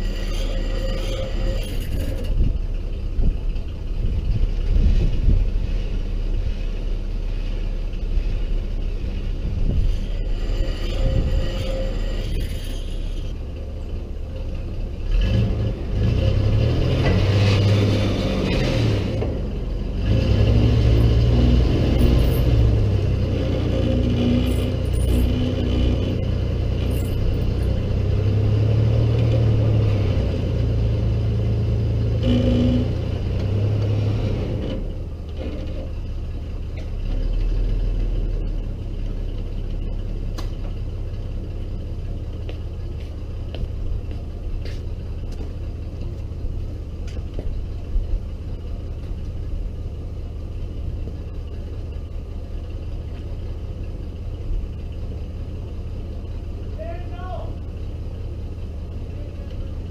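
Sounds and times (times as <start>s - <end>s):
car engine revving and idling: 0.0s - 59.9s.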